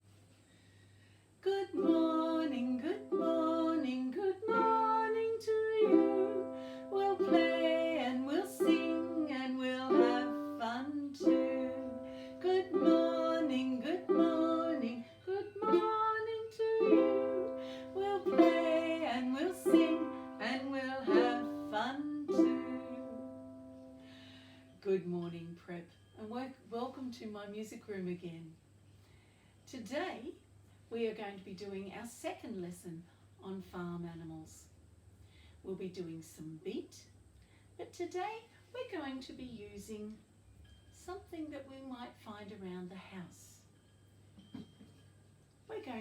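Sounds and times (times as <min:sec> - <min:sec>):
person singing: 0:01.5 - 0:23.4
ukulele strummed in chords: 0:01.7 - 0:24.0.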